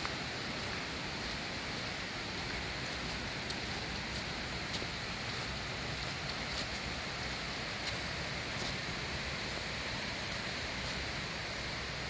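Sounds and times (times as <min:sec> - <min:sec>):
waterfall rushing: 0:00.0 - 0:12.0
faint light ticks: 0:02.5 - 0:08.8.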